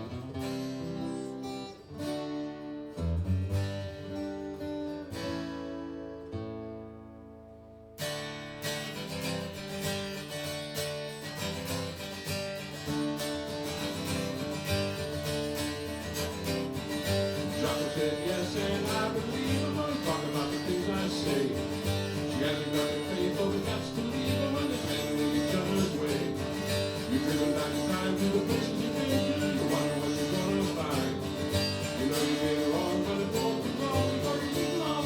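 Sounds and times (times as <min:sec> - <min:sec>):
acoustic guitars playing: 0:00.0 - 0:35.0.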